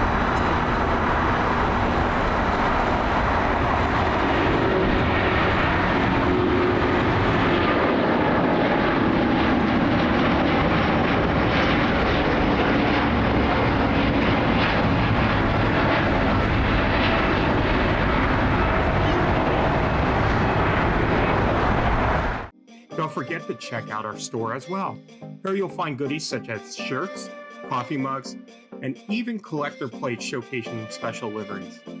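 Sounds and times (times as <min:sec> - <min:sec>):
jet engines running loud: 0:00.0 - 0:22.5.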